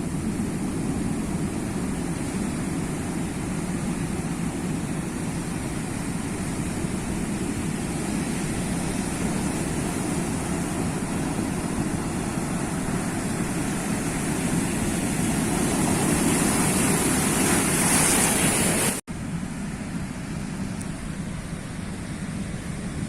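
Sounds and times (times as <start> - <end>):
sea waves washing onto shore: 0.0 - 19.0.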